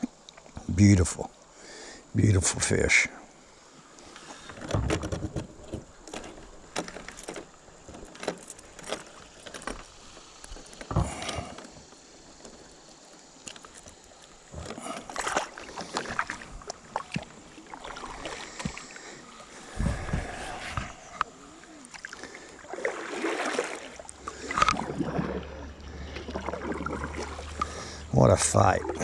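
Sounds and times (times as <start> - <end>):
fishing gear knocks and rustles: 4.4 - 17.4.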